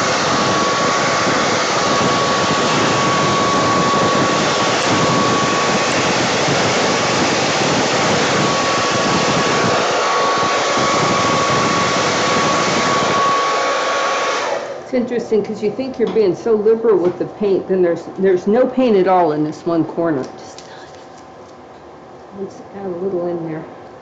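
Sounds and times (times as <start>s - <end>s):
hair dryer motor whine: 0.0s - 18.2s
hair dryer blowing air: 0.0s - 19.4s.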